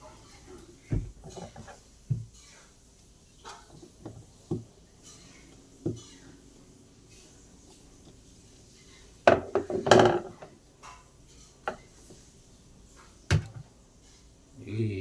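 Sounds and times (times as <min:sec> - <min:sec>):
knocks and clunks on washing machine: 0:00.0 - 0:02.5, 0:03.5 - 0:04.8, 0:05.8 - 0:06.2, 0:09.3 - 0:10.5, 0:13.3 - 0:13.7.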